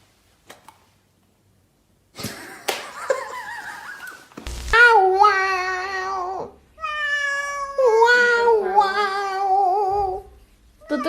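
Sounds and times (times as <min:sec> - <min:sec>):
cat meowing: 0:05.2 - 0:08.4.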